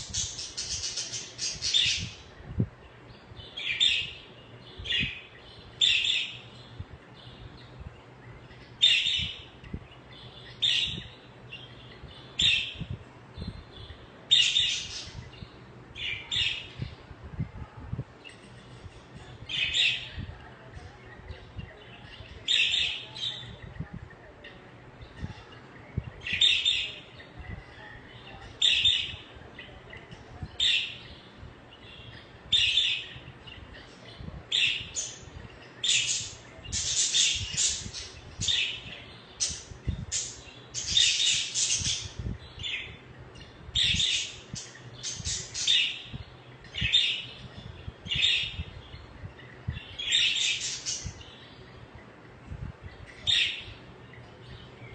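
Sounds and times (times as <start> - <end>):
budgerigars chirping: 0.0 - 2.2.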